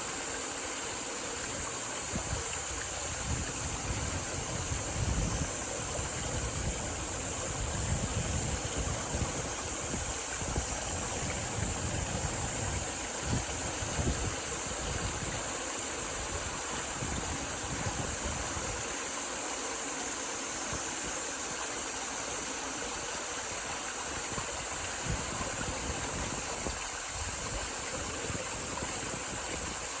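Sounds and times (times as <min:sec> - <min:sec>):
wind rustling through fields: 0:00.0 - 0:18.9, 0:23.0 - 0:30.0
steady high hiss: 0:00.0 - 0:30.0
wind buffeting microphone: 0:02.1 - 0:15.4.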